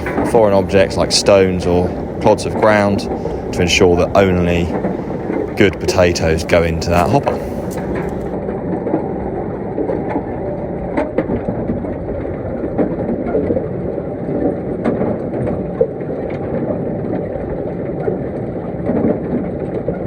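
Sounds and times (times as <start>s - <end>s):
low mechanical rumble: 0.0s - 14.2s.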